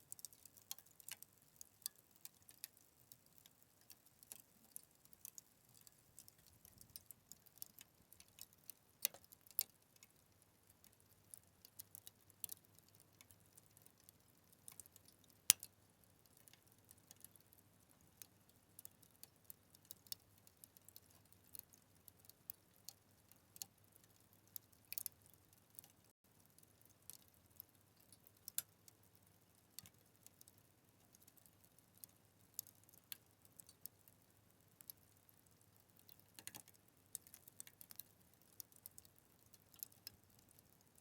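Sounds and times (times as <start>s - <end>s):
wood fire crackling: 0.0s - 28.7s, 29.4s - 34.1s, 34.8s - 41.0s.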